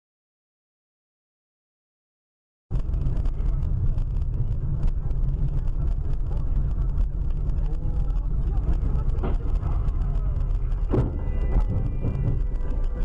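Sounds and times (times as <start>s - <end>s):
car road and engine rumble: 2.7s - 13.0s.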